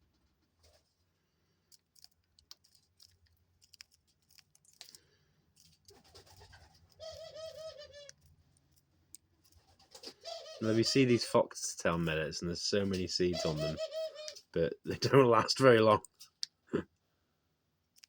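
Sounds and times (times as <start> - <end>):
dove cooing: 7.0 - 8.1, 10.1 - 11.0, 13.4 - 14.4.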